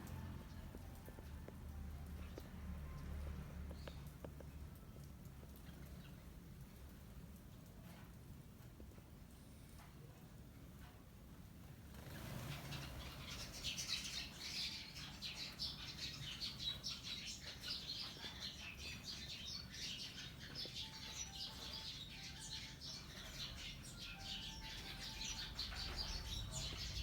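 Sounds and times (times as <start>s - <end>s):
flock of small birds chirping: 3.7s - 7.2s, 11.8s - 27.0s.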